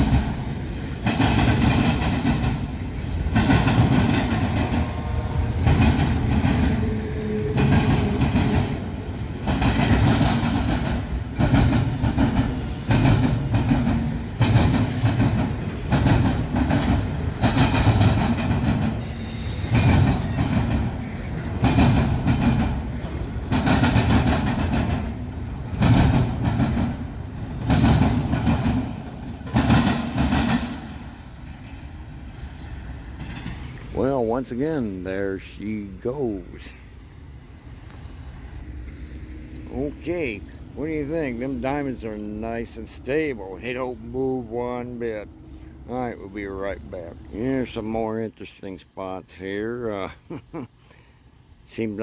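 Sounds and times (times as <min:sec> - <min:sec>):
train wheels clattering over crossing: 0:00.0 - 0:34.8.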